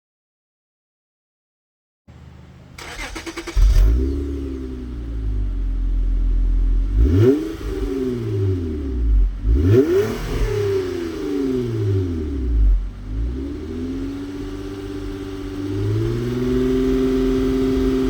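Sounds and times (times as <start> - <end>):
car engine idling and revving: 2.1 - 18.0
starter cranking: 2.8 - 4.0.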